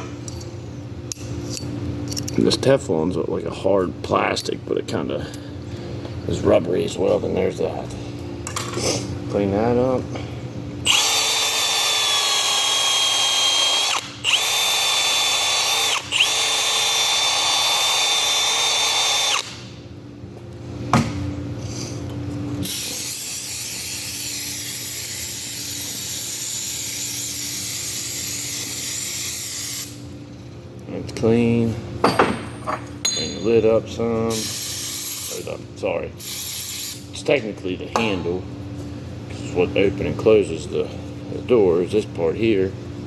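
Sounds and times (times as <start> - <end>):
power drill with wire wheel whining: 10.9 - 19.6.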